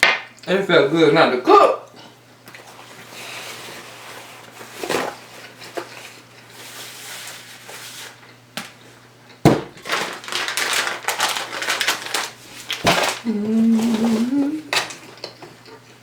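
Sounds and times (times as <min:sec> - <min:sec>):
rustling: 0:09.8 - 0:15.0.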